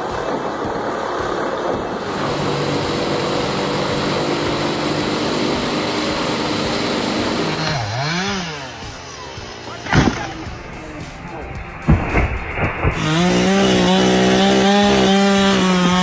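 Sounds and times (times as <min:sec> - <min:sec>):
chainsaw engine at high revs: 0:02.0 - 0:10.6, 0:12.9 - 0:16.0.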